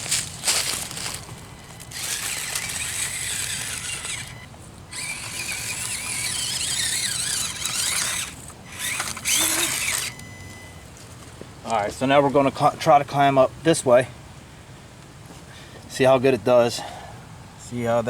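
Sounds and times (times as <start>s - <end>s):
small electric motor whining: 0.0s - 10.8s.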